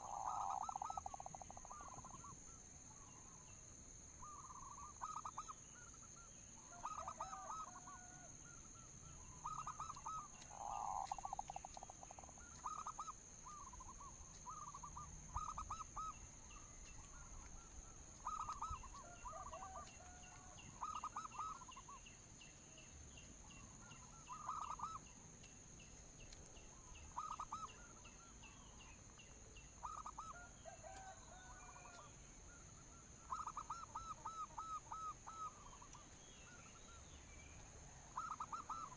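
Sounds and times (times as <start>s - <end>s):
doves cooing: 0.0s - 2.3s, 4.2s - 22.0s, 23.6s - 25.1s, 27.1s - 28.8s, 29.8s - 32.1s, 33.2s - 37.0s, 38.2s - 38.9s
faint high-pitched whine: 0.0s - 38.9s.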